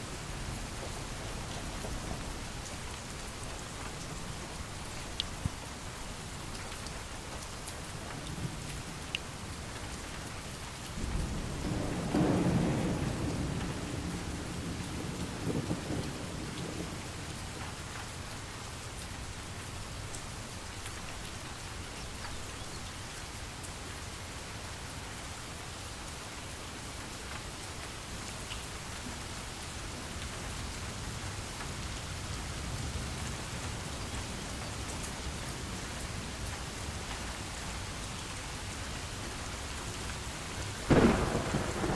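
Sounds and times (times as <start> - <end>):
steady rain falling: 0.0 - 41.9
thunder rumbling: 11.0 - 17.6, 40.8 - 41.9.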